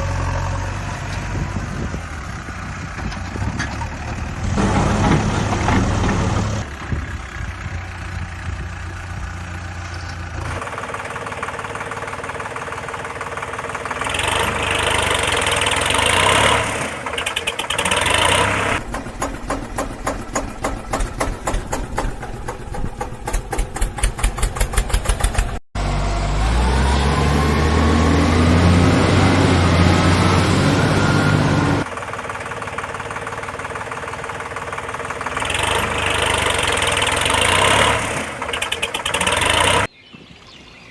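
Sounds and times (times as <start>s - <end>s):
heavy vehicle engine rumbling: 0.0s - 40.2s
engine knocking chug: 10.4s - 25.6s, 31.8s - 39.9s
rising engine whine: 25.1s - 31.9s.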